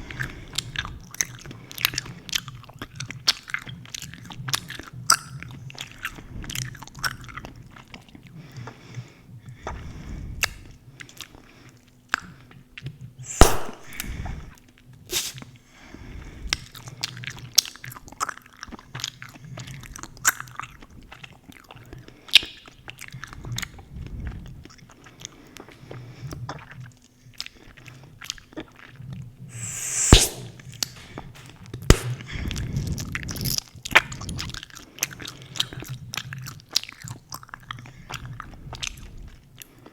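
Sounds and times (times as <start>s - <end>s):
sharp gum pops: 13.3s - 14.2s, 29.5s - 32.3s.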